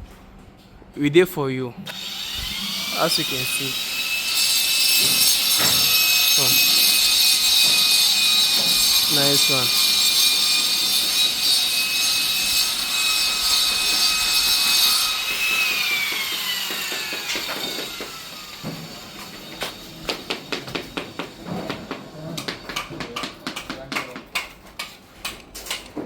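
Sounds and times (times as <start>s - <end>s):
angle grinder cutting stone: 1.8s - 21.4s.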